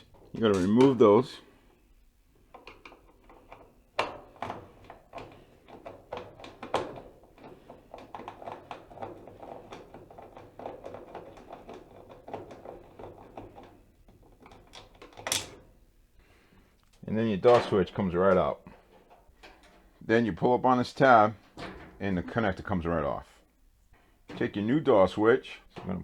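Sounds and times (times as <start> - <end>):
screwdriver clicking and scraping: 2.5 - 13.7.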